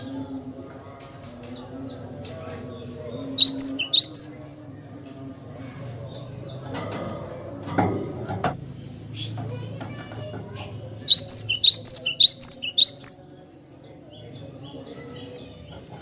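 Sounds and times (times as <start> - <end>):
bird chirping: 1.4 - 4.4, 10.7 - 15.7.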